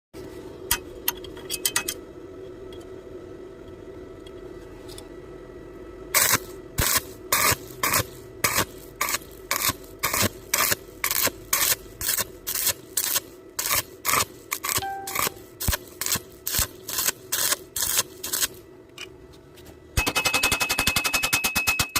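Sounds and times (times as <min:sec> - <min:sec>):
steady low hum: 0:00.2 - 0:21.9
scraping strokes on metal: 0:06.2 - 0:18.6.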